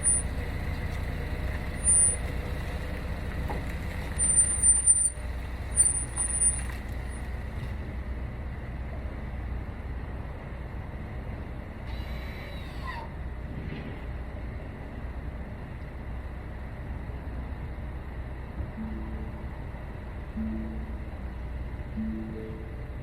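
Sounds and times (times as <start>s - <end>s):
car engine idling: 0.0s - 23.0s
high-pitched squeaks: 5.8s - 6.7s.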